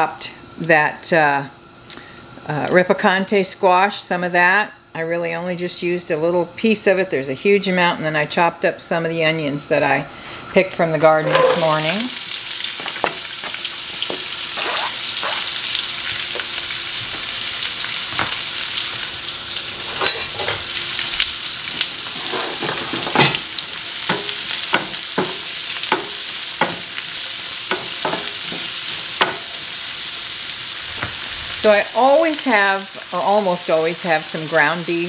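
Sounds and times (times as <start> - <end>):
vegetables sizzling in a wok: 9.5 - 35.0
spatula scraping a pan: 11.0 - 12.1.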